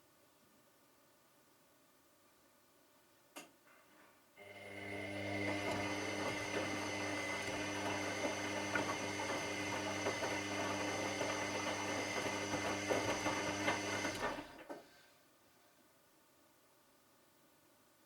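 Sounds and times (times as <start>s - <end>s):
washing machine motor humming: 4.4s - 14.7s.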